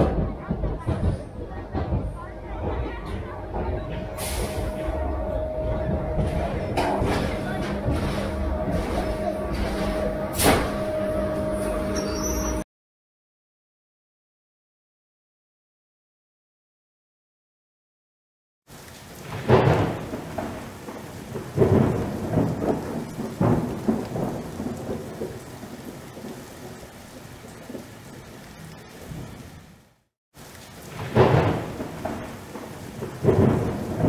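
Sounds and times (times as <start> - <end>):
steady rain: 0.0 - 12.6, 18.7 - 34.0
thunder rolling: 0.0 - 12.6, 18.7 - 29.6, 30.5 - 34.0.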